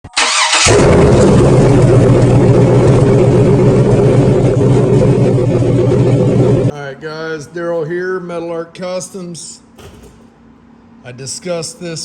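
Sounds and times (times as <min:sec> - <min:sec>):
car engine running loudly: 0:00.6 - 0:06.7.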